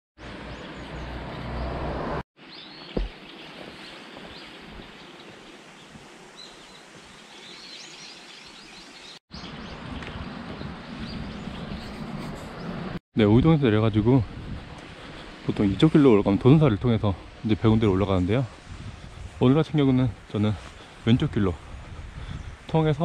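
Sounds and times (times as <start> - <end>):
small birds chirping: 0.2 - 1.8, 2.4 - 12.8, 21.7 - 23.0.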